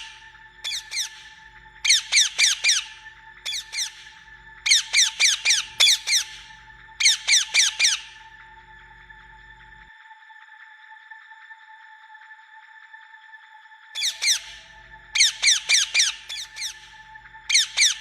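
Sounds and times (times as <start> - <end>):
parrot squawking: 0.7 - 1.3, 1.9 - 4.0, 4.7 - 6.4, 7.0 - 8.1, 14.0 - 14.6, 15.2 - 16.8, 17.5 - 18.0.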